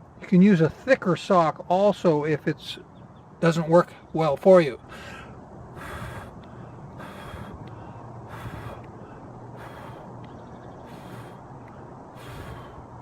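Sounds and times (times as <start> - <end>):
faint steady hum: 0.0 - 13.0
man breathing: 4.8 - 13.0.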